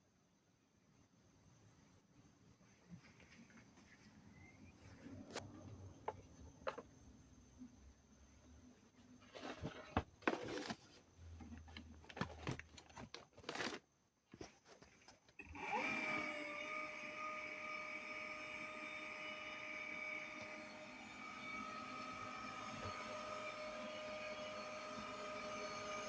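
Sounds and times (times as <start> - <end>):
pump motor whining: 15.4 - 26.0.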